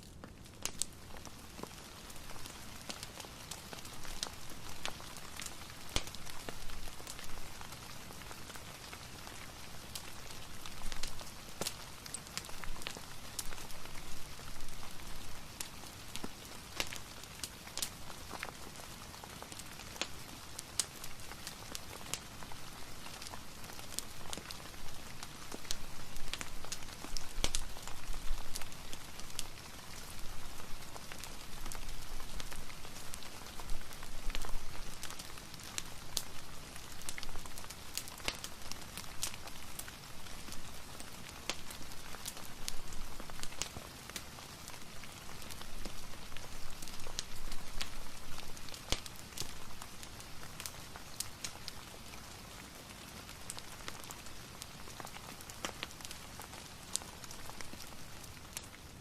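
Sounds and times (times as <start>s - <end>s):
wood fire crackling: 0.0s - 59.0s
sharp pops and ticks: 0.6s - 0.9s, 25.2s - 27.6s, 48.8s - 49.6s
rain hiss: 0.7s - 59.0s.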